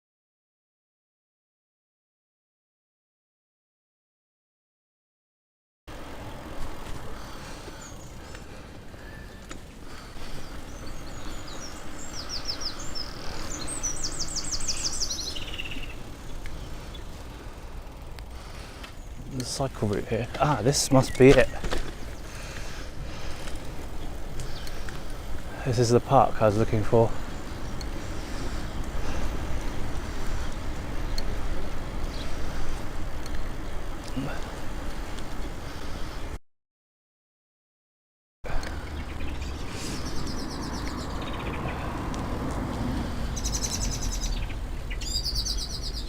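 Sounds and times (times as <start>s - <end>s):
bicycle tyres rolling: 5.9s - 36.4s, 38.5s - 46.0s
songbird singing: 6.3s - 36.3s, 38.5s - 46.0s
faint ticks: 6.6s - 11.3s, 18.1s - 20.5s, 23.3s - 25.5s, 27.7s - 28.1s, 30.5s - 35.5s.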